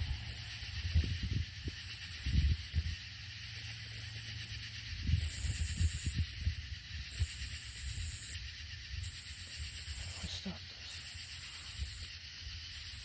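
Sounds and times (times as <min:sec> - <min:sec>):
cicadas singing: 0:00.0 - 0:13.0.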